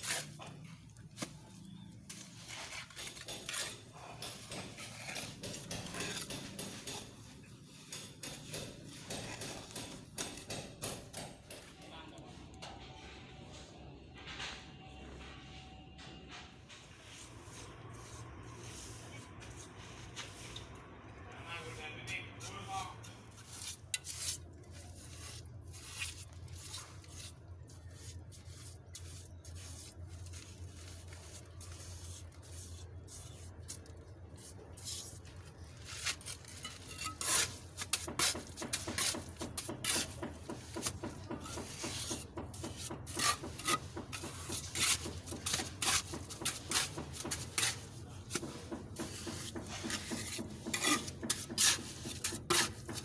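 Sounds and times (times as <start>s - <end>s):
hand tool scraping rough surface: 0.0s - 11.0s, 22.1s - 53.0s.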